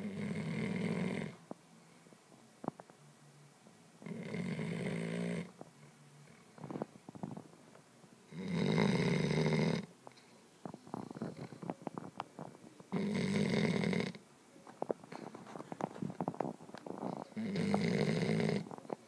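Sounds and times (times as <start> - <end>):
puppy snoring loudly: 0.0 - 1.4, 4.0 - 5.6, 8.3 - 9.9, 10.9 - 11.7, 12.9 - 14.2, 17.0 - 18.8.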